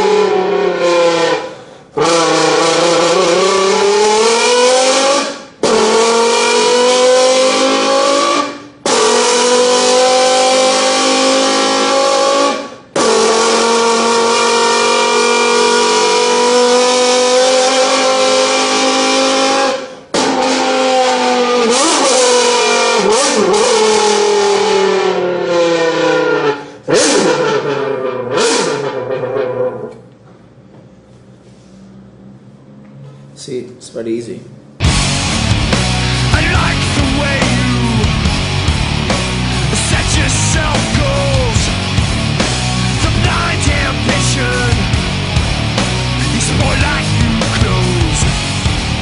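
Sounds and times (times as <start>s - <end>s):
vocal imitation of revving engine: 0.0s - 30.0s, 34.8s - 49.0s.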